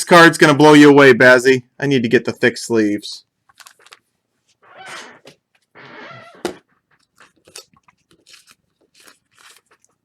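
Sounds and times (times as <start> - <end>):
card sleeves rustling: 3.5 - 10.0.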